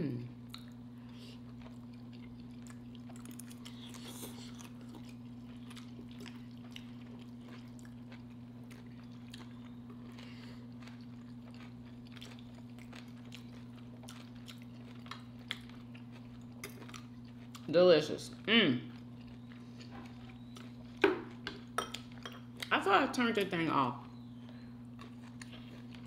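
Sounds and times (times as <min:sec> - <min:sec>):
steady low hum: 0:00.0 - 0:26.0
chewing and mouth smacks: 0:00.4 - 0:17.7, 0:18.3 - 0:22.7, 0:24.0 - 0:26.0.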